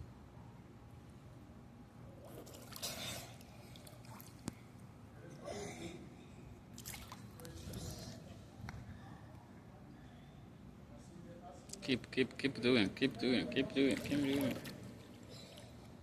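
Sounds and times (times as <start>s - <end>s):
water splashing: 6.8s - 7.5s, 13.8s - 15.7s.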